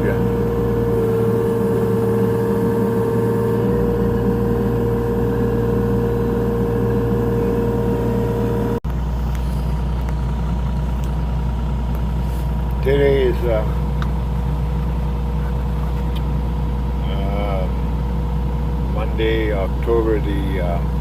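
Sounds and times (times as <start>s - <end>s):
steady high tone: 0.0s - 8.8s
excavator diesel engine running: 0.0s - 21.0s.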